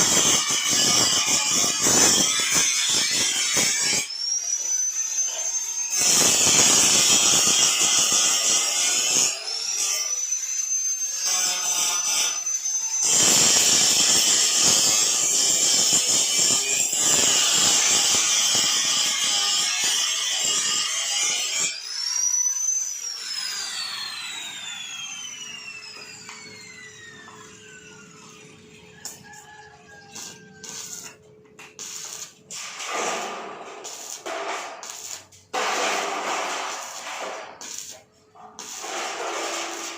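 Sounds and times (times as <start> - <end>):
power tool cutting material: 0.0 - 38.0
electric power tool whining: 21.8 - 29.4.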